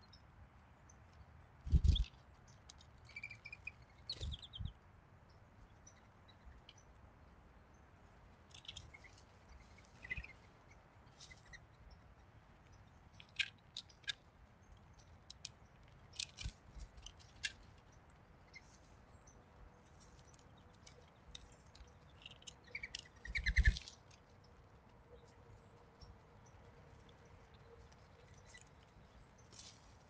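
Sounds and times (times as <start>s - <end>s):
faint bird chips: 1.7s - 4.8s, 8.5s - 12.0s, 13.0s - 24.6s.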